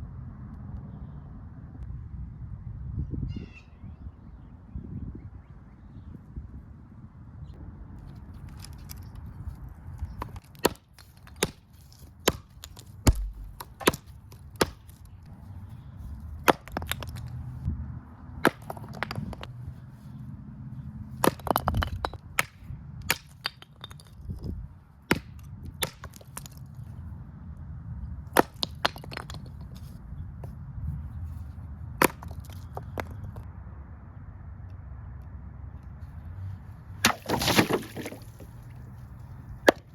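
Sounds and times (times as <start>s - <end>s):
machete chopping into wood: 12.3s - 15.0s, 37.0s - 38.4s.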